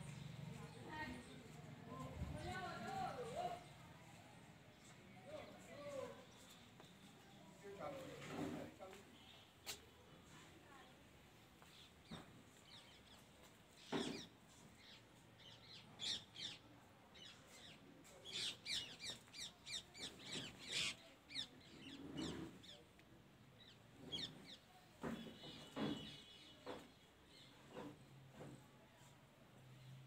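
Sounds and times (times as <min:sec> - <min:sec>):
small birds chirping: 0:11.6 - 0:22.9.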